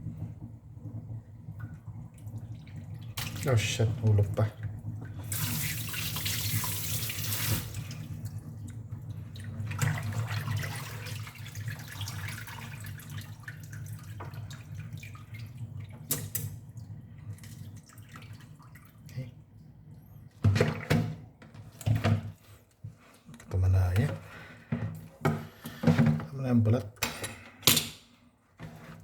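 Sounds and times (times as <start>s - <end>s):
tap water running into sink: 0.9s - 16.7s.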